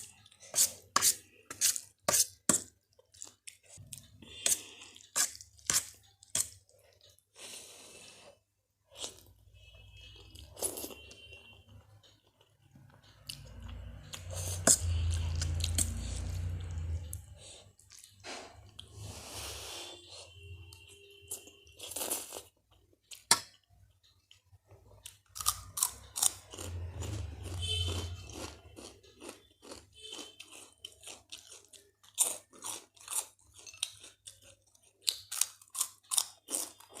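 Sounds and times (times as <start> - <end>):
chewing crunchy food: 2.6 - 7.3, 10.2 - 19.0, 21.3 - 37.0.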